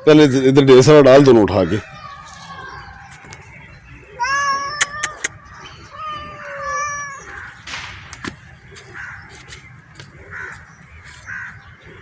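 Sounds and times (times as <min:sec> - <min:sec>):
crows cawing: 0:01.1 - 0:03.4, 0:04.1 - 0:12.0
cat meowing: 0:04.1 - 0:07.6.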